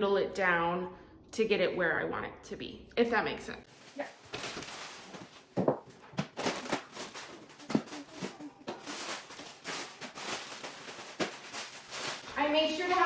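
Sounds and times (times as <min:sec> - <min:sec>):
packages rustling and knocking: 0:03.7 - 0:13.0.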